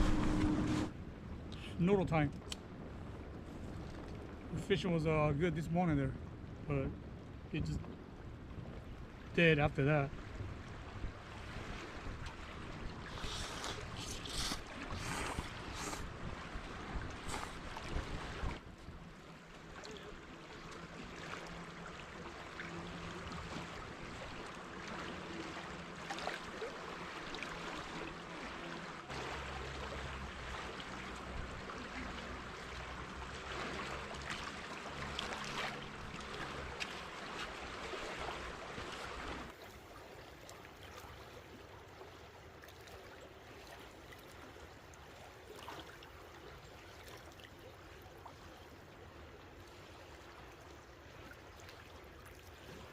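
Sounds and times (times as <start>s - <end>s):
river water rushing: 0.0s - 0.9s, 19.4s - 41.2s.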